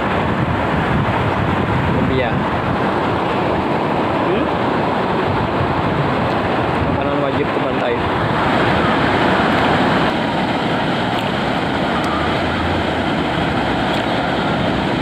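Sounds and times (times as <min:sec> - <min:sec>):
surf washing: 0:00.0 - 0:15.0
wind noise on microphone: 0:00.0 - 0:15.0.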